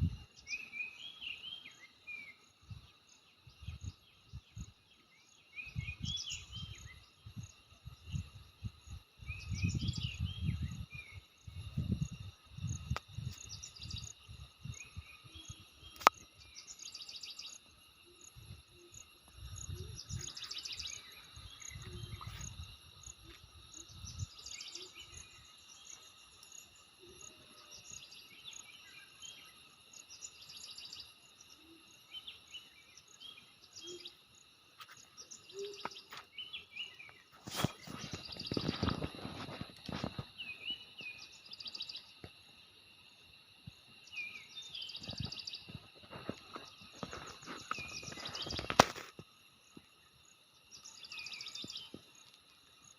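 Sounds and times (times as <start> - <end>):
insects trilling: 0.0 - 52.9
birds chirping: 13.4 - 26.2, 44.0 - 48.8.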